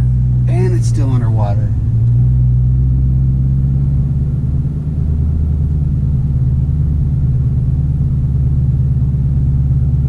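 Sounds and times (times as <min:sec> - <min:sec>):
car engine running steadily: 0:00.0 - 0:10.0.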